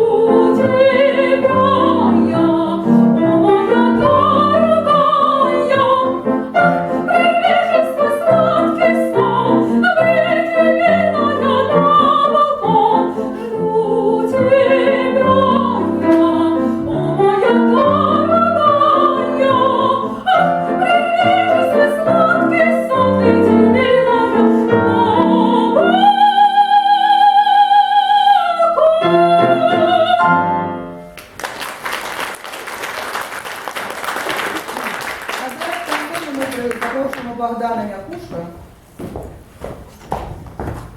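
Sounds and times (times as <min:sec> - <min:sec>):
woman singing opera: 0:00.0 - 0:30.5
grand piano accompaniment: 0:00.0 - 0:38.8.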